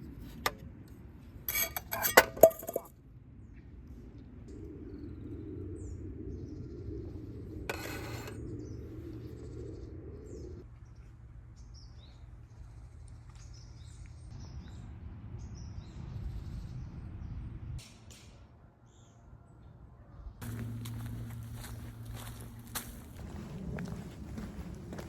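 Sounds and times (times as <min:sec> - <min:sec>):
small birds chirping: 0:03.5 - 0:17.6, 0:20.4 - 0:25.0
low background rumble: 0:20.2 - 0:25.0.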